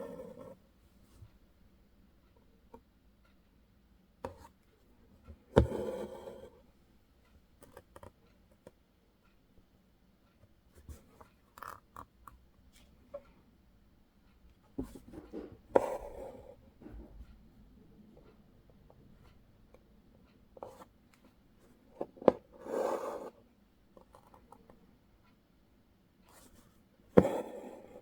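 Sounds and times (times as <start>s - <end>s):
needle tapping through fabric: 5.5s - 6.2s, 27.2s - 27.7s.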